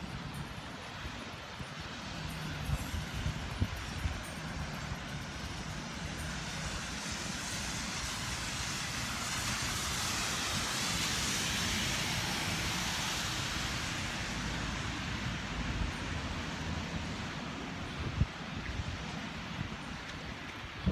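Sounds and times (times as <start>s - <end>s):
wind rumble on microphone: 0.0s - 20.9s
rain hiss on wet pavement: 5.3s - 20.9s
car passing on wet road: 6.3s - 20.8s.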